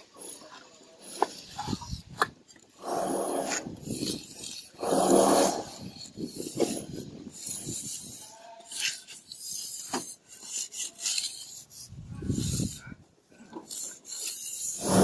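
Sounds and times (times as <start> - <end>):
tool scraping wet plaster: 0.1 - 15.0.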